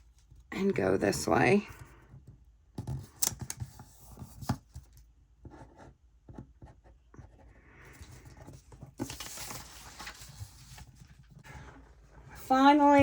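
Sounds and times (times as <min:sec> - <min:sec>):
paper rustling: 0:07.9 - 0:13.0.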